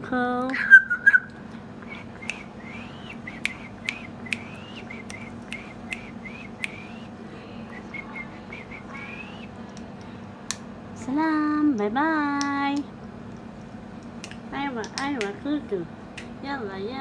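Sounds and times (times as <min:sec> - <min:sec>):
parrot chirping and whistling: 0:00.6 - 0:07.1, 0:07.8 - 0:09.5
parrot clicks: 0:02.0 - 0:07.1, 0:12.4 - 0:15.4.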